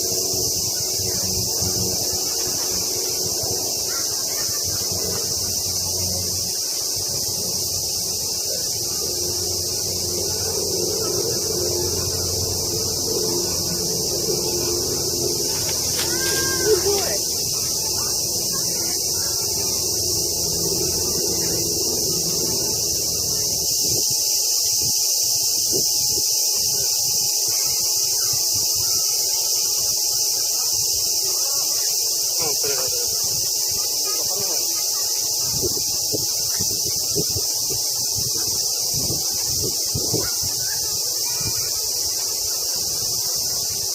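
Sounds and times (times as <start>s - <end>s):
faint low background murmur: 0.0s - 24.1s
cicadas buzzing: 0.0s - 43.9s.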